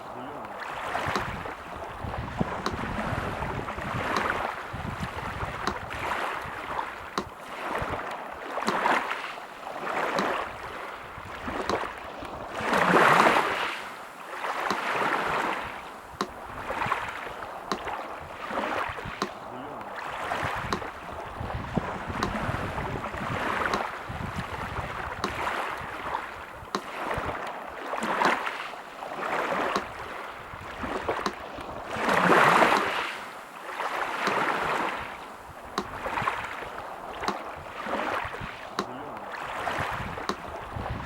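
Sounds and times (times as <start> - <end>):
sea surf washing in and out: 0.0 - 41.0
metronome ticking slowly: 0.3 - 1.4, 4.0 - 4.4, 17.7 - 17.9, 22.2 - 22.4, 23.7 - 23.9.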